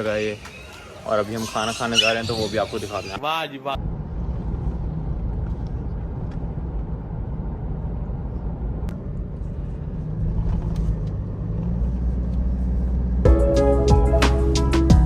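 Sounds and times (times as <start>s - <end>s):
engine and road rumble: 3.8s - 15.0s
music: 13.3s - 15.0s.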